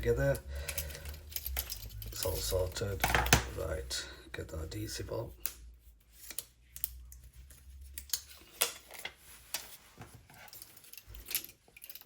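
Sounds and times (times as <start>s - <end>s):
light clicks of small parts: 0.4s - 2.6s, 5.3s - 9.7s, 10.4s - 12.0s.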